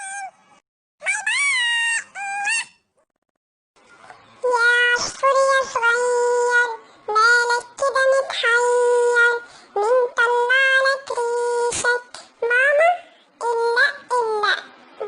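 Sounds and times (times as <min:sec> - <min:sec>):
high pitched-up cartoon voice singing: 0:01.0 - 0:02.8, 0:04.4 - 0:14.7.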